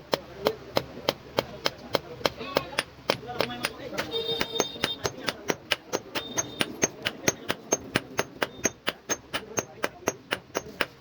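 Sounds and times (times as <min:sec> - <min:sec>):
hammer striking steel on anvil: 0:02.6 - 0:11.0.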